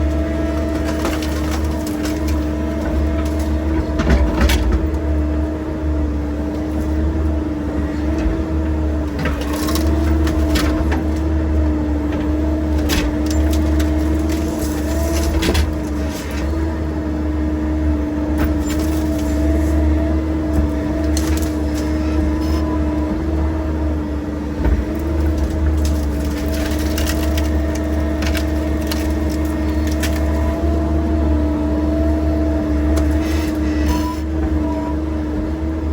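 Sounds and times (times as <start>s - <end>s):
wood snapping and splintering: 0.0s - 5.1s, 9.0s - 16.8s, 18.3s - 22.7s, 24.6s - 31.2s
excavator diesel engine running: 0.0s - 35.9s.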